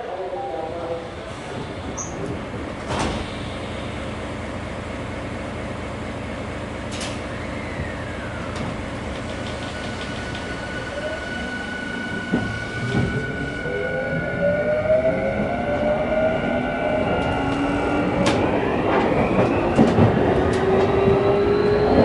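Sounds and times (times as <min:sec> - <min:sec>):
train interior rumble: 0:00.0 - 0:22.0.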